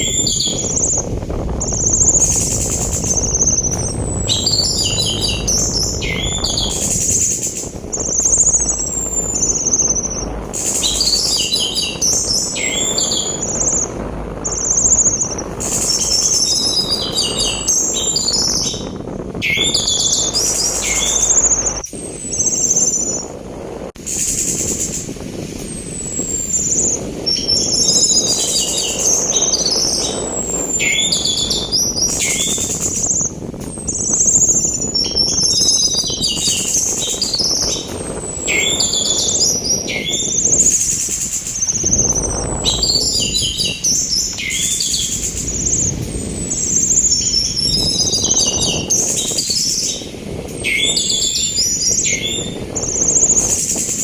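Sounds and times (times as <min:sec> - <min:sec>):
thrush singing: 0:00.0 - 0:23.3
rushing sea wind: 0:00.0 - 0:54.0.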